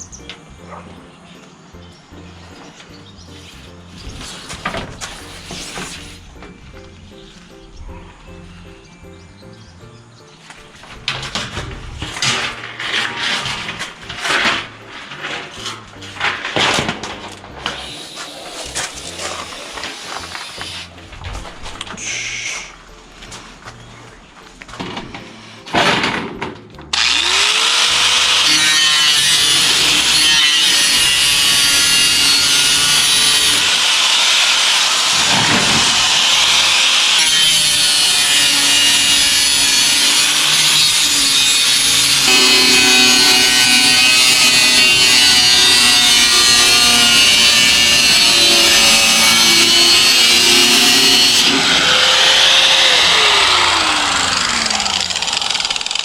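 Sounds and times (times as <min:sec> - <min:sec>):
background music: 0:00.0 - 0:55.7
power saw cutting: 0:03.4 - 0:06.5, 0:12.1 - 0:21.0, 0:26.9 - 0:56.0
motor winding down: 0:26.9 - 0:28.7, 0:49.9 - 0:56.0.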